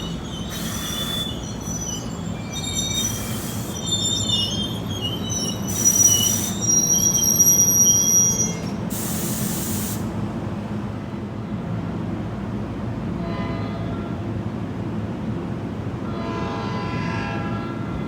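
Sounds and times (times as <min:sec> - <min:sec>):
train wheels squealing: 0:00.0 - 0:10.0
train rumble: 0:00.0 - 0:18.0.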